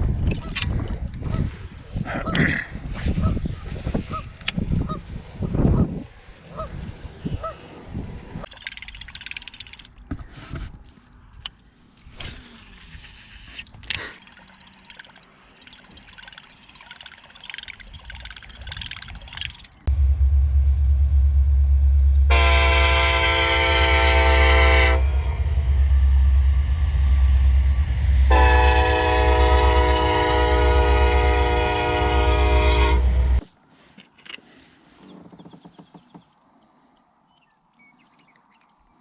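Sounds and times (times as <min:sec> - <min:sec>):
steady low rumble: 0:18.6 - 0:33.5
train horn blasts: 0:22.2 - 0:26.3, 0:28.2 - 0:33.5.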